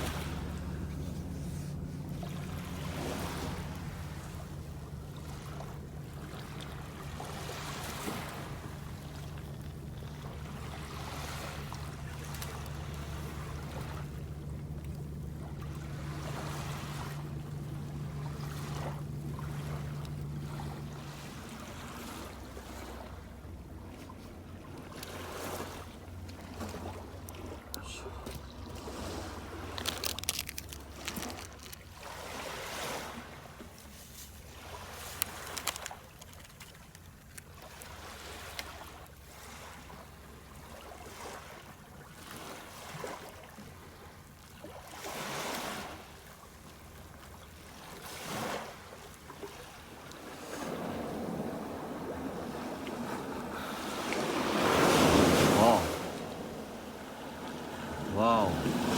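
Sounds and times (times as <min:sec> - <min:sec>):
boat engine drone: 0:00.0 - 0:35.8, 0:49.0 - 0:58.9
small waves washing onto sand: 0:00.0 - 0:58.9.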